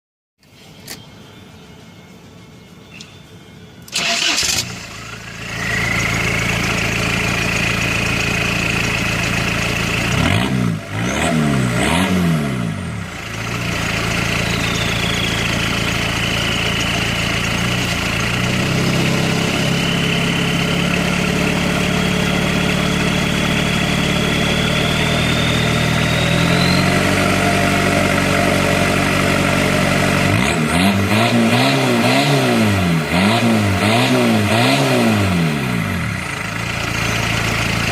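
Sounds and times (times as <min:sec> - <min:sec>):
diesel engine idling: 0:03.9 - 0:11.0, 0:12.6 - 0:30.9, 0:35.6 - 0:37.9
thin high whine: 0:16.0 - 0:21.6.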